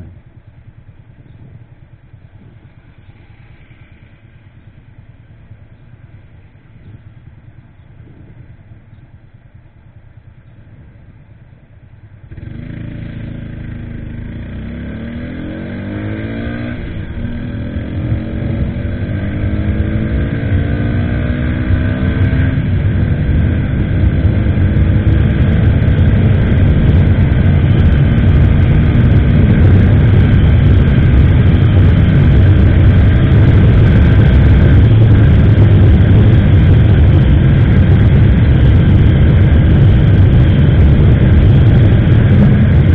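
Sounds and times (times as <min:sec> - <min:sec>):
motorcycle engine accelerating: 0:00.0 - 0:42.9
wind rushing over microphone: 0:10.6 - 0:42.9.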